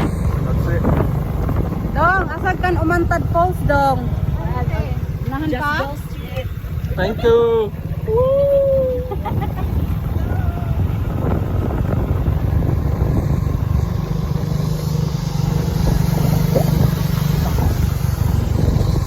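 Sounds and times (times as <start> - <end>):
motorcycle engine rumble: 0.0 - 19.0.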